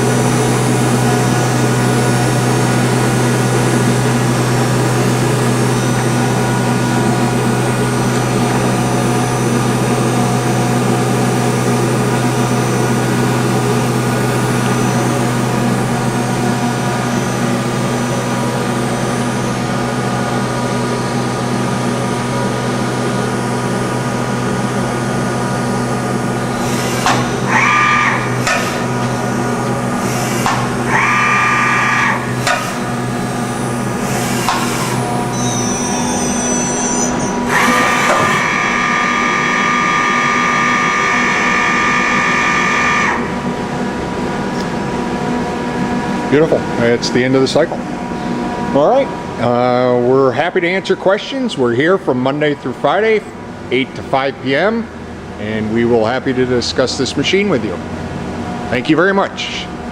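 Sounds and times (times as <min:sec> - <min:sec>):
machine hum with fixed tones: 0:00.0 - 0:59.9
short ringing tones: 0:35.3 - 0:37.5.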